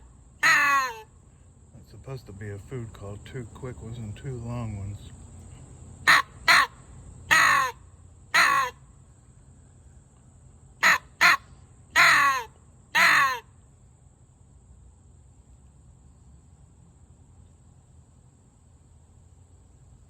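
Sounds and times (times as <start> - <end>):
crow call caws: 0.0 - 1.1, 6.1 - 8.8, 10.8 - 13.6.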